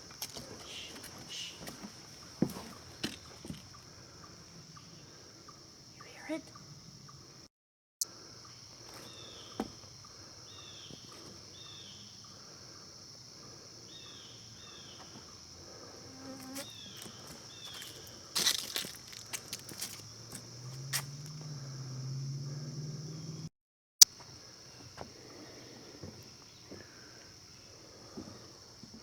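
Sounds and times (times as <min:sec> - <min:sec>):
bird call: 0:00.6 - 0:02.8
high-pitched insect drone: 0:15.9 - 0:23.5.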